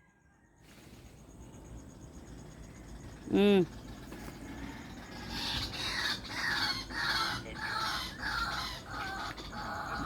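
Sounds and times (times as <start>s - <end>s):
fowl calling: 4.1s - 10.0s.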